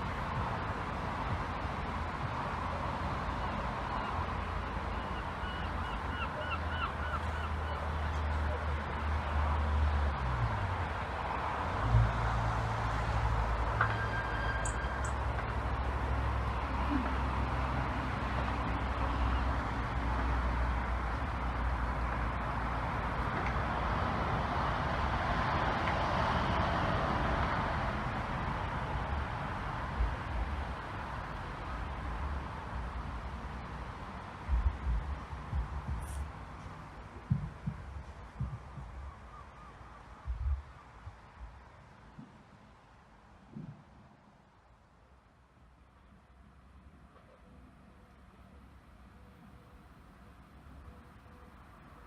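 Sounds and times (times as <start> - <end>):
low outdoor rumble and hiss: 0.0 - 52.0
bird calling: 3.4 - 8.2.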